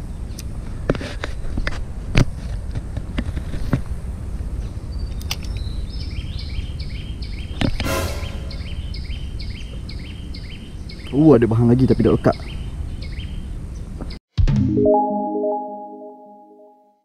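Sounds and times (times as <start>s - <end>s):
brief rasp: 7.8s - 8.6s
high two-note chirping call: 7.9s - 8.8s.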